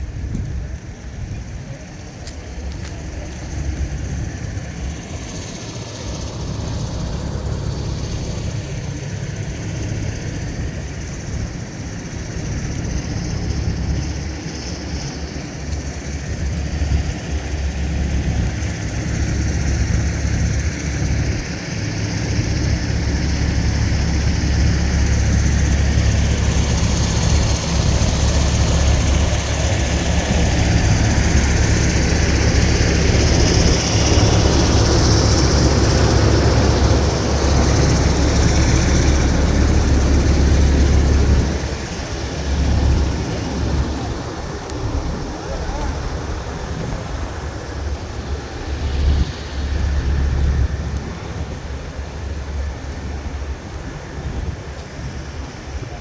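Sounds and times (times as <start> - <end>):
heavy vehicle engine rumble: 0.0 - 56.0.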